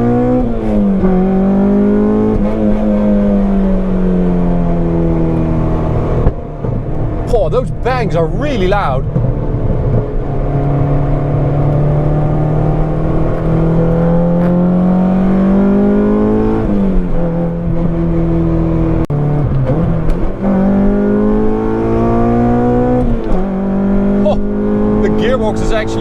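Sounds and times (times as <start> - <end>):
car engine revving hard: 0.0 - 6.3, 9.9 - 26.0
sharp exhaust crack: 11.5 - 14.6.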